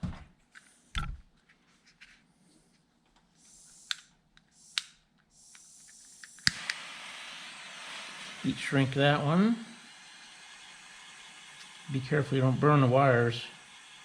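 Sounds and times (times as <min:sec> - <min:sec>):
gas torch hissing: 0:03.3 - 0:14.0
igniter clicks: 0:06.2 - 0:06.9.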